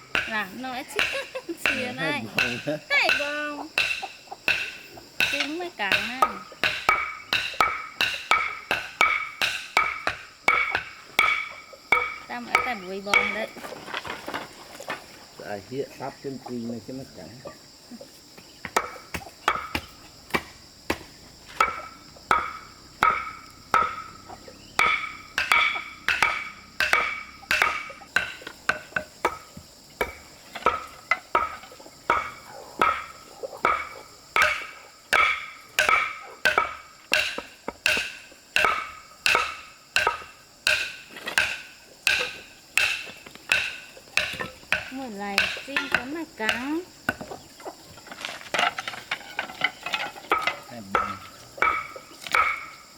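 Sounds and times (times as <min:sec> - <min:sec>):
insects shrilling: 0:00.0 - 0:52.9
knife chopping on wooden board: 0:24.8 - 0:28.4.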